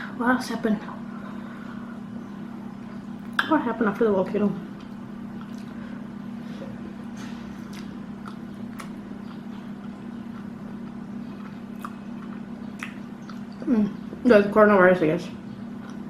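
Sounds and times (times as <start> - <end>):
steady low hum: 0.0 - 16.0
chewing: 4.8 - 5.9, 7.2 - 13.7, 15.8 - 16.0.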